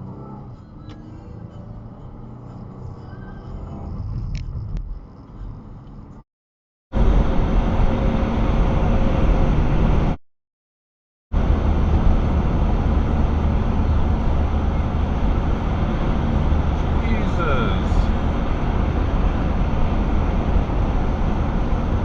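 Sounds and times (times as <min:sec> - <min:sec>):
vehicle road and engine noise: 0:00.0 - 0:06.3, 0:06.9 - 0:10.2, 0:11.3 - 0:22.0.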